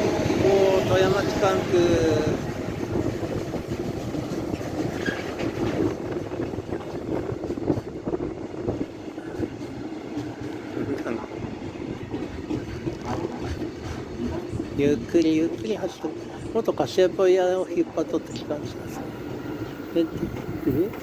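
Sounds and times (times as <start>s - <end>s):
train wheel clacks: 0.0s - 8.1s, 12.0s - 17.2s
train wheels rumbling on rails: 0.0s - 21.0s.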